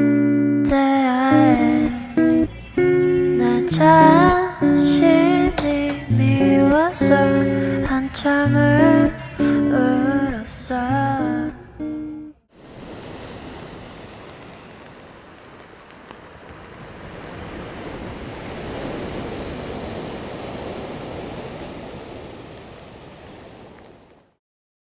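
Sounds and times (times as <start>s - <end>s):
sea surf rushing on shore: 12.5s - 24.4s.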